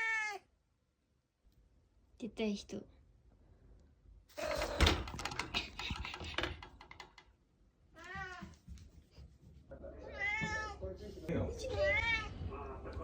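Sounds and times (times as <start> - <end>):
cat meowing: 0.0 - 0.5, 8.0 - 8.6, 10.0 - 10.8, 11.6 - 12.4.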